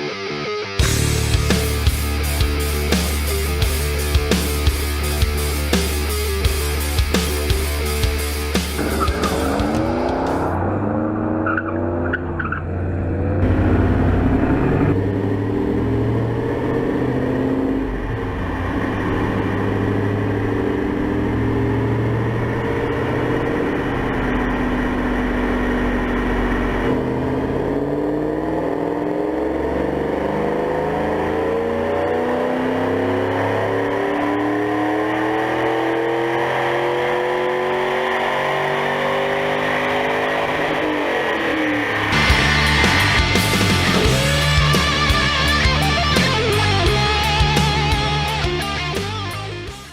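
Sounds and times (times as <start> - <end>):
rock music: 0.0 - 11.0, 38.4 - 49.9
car engine revving: 0.0 - 49.9.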